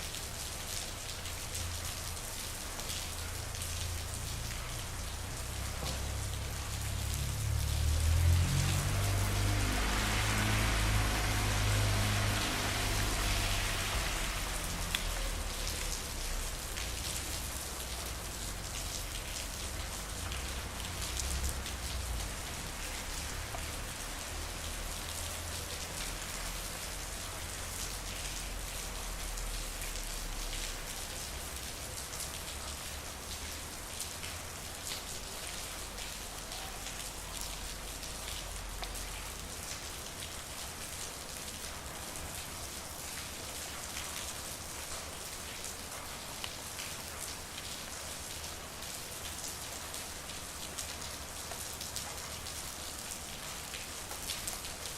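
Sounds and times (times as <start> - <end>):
rain on a street: 0.0 - 54.9.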